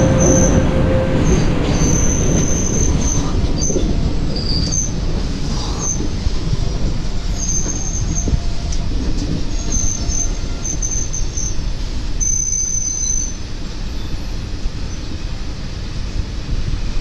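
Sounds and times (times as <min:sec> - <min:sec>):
high-pitched wheel squeal: 0:00.0 - 0:05.0, 0:07.2 - 0:11.6, 0:12.2 - 0:15.1
train rumbling on rails: 0:00.0 - 0:17.0.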